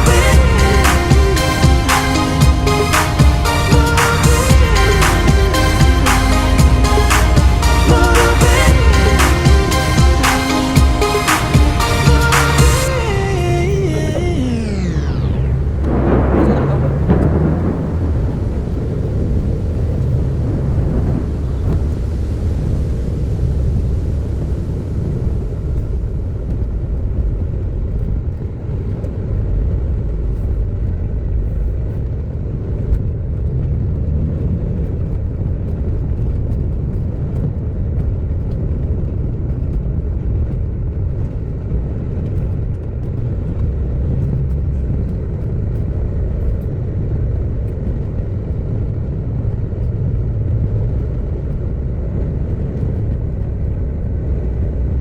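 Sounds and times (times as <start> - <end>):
car driving rumble: 0.0 - 22.8.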